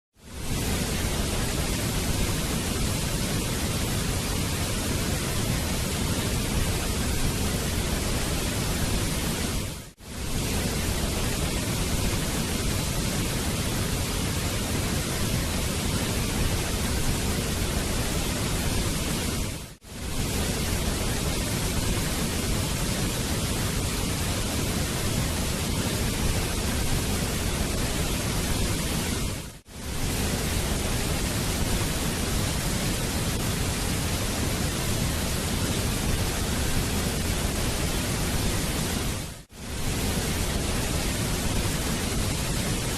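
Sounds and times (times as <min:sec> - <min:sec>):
waterfall rushing: 0:20.0 - 0:42.9.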